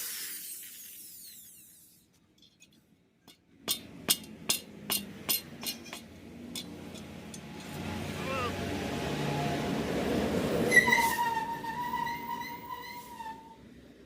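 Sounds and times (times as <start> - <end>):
metallic taps on exhaust pipe: 2.4 - 7.8.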